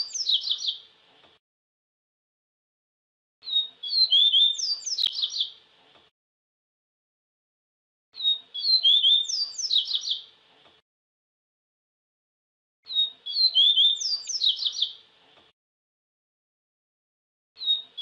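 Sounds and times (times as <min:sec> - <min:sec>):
bird twittering song: 0:00.0 - 0:00.8, 0:03.4 - 0:05.6, 0:08.2 - 0:10.3, 0:12.8 - 0:15.0, 0:17.6 - 0:18.0.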